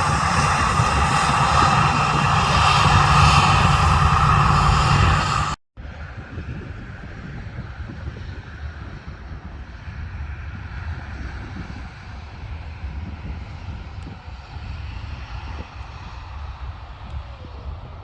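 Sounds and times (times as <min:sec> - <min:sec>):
jet engines rumbling: 0:00.0 - 0:05.6.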